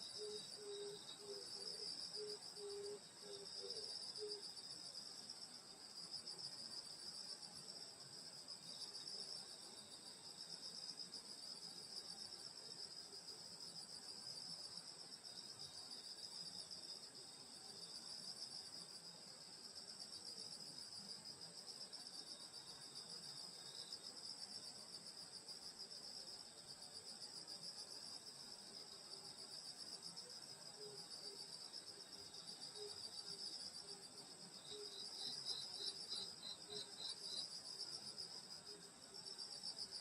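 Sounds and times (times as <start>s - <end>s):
insect chirps: 0.0s - 40.0s
crickets trilling: 29.6s - 39.9s.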